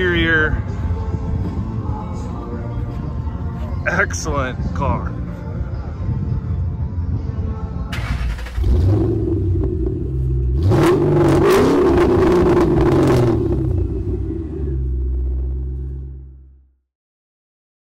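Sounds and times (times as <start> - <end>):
car engine rumbling and revving: 7.9 - 16.7.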